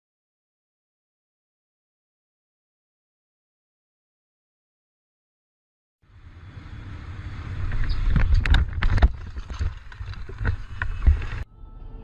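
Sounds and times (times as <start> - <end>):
wind: 6.0 - 12.0
vehicle cabin road rumble: 6.1 - 12.0.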